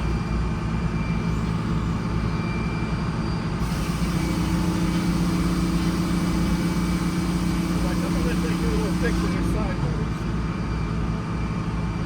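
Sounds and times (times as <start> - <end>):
second steady hum: 3.6 - 10.2
sawmill engine running: 3.6 - 10.6.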